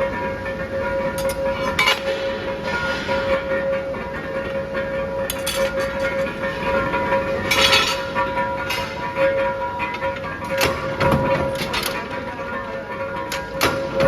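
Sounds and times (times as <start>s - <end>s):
metal clinks and knocks: 1.0s - 3.3s, 5.3s - 12.2s.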